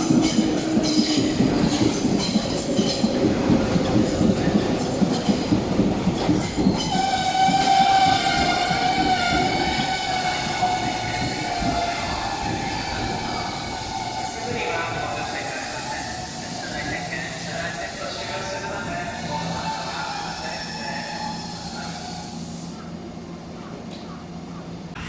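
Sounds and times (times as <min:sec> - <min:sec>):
train wheels clacking on rails: 0:00.0 - 0:15.8.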